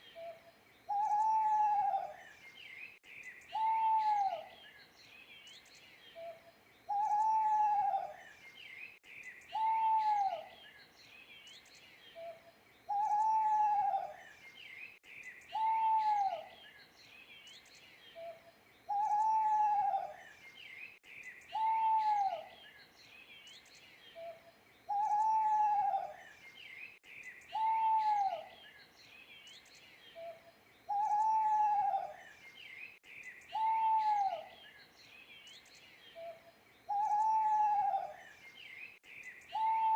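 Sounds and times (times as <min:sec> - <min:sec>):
small birds chirping: 0:00.0 - 0:39.9
owl hooting: 0:00.2 - 0:02.2, 0:03.5 - 0:04.5, 0:06.9 - 0:08.2, 0:09.5 - 0:10.5, 0:12.2 - 0:14.2, 0:15.5 - 0:16.5, 0:18.2 - 0:20.2, 0:21.5 - 0:22.5, 0:24.2 - 0:26.2, 0:27.5 - 0:28.5, 0:30.2 - 0:32.2, 0:33.5 - 0:34.6, 0:36.2 - 0:38.2, 0:39.5 - 0:39.9.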